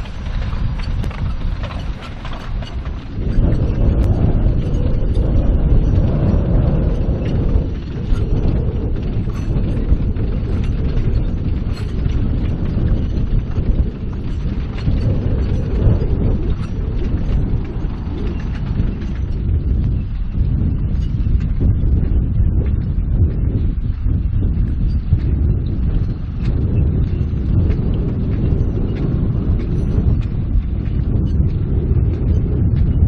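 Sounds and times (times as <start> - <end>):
train rumbling past: 0.0 - 10.7
wheels clicking on track: 0.0 - 33.0.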